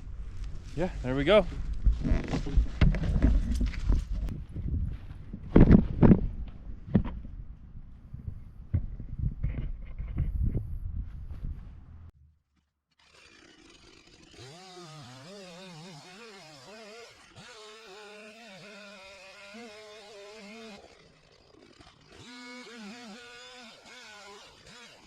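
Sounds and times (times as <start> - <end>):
distant chainsaw revving: 13.0 - 25.0.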